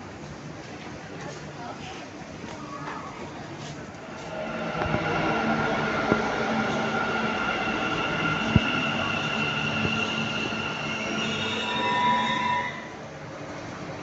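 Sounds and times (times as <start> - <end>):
train rumbling: 0.0 - 14.0
high whine: 4.0 - 12.9.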